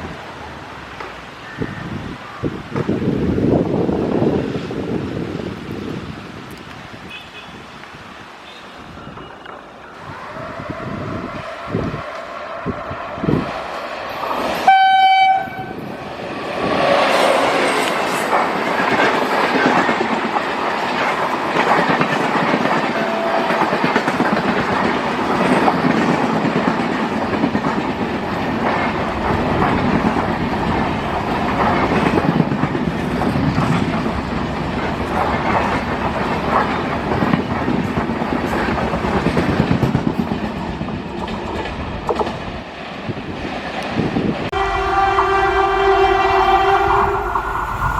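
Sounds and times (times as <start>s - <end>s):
train rumbling past: 7.9s - 47.9s
train horn blast: 14.6s - 15.8s, 22.9s - 23.7s, 44.5s - 47.9s
wheel clatter over rail joints: 17.8s - 44.1s.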